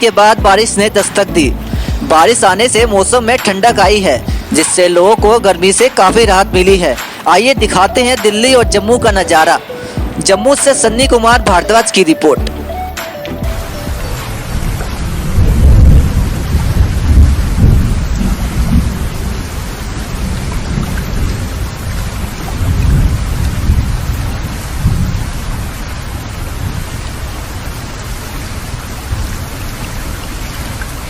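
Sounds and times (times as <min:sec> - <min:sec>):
heavy rain falling: 0:00.0 - 0:31.0
rolling thunder: 0:13.4 - 0:27.3.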